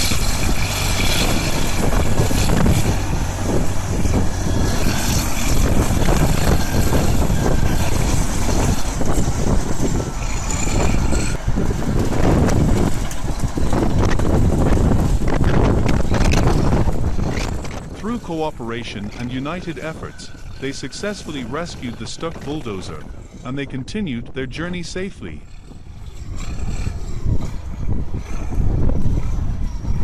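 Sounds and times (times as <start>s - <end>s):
bulldozer diesel engine under load: 0.0s - 30.0s.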